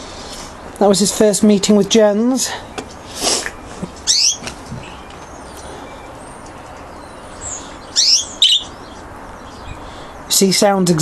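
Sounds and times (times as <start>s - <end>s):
budgerigars chirping: 2.9s - 10.7s.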